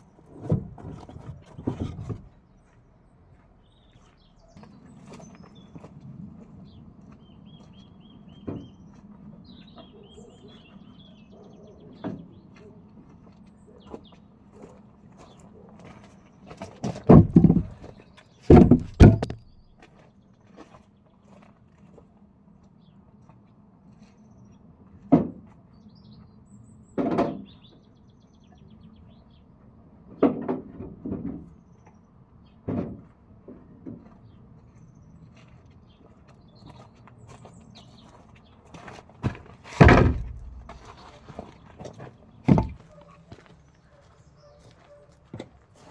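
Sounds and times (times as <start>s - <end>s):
small birds chirping: 6.7s - 12.6s
sharp knocks: 17.1s - 17.8s, 18.5s - 19.6s, 39.8s - 41.0s, 42.5s - 42.8s.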